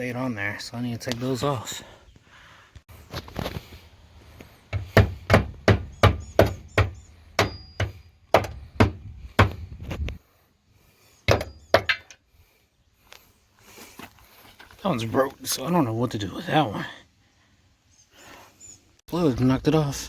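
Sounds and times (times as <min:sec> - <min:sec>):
sharp hard knocks on metal: 0:04.7 - 0:09.6, 0:11.3 - 0:12.1.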